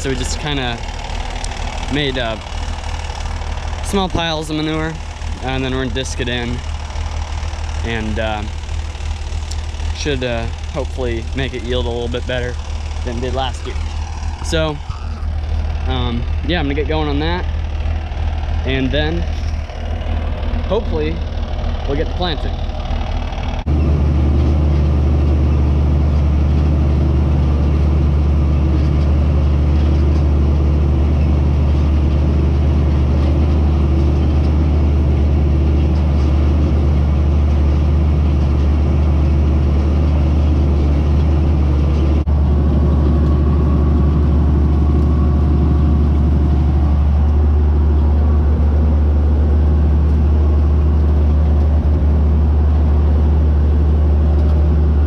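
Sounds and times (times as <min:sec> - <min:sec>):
tractor diesel engine droning: 0:00.0 - 0:55.0.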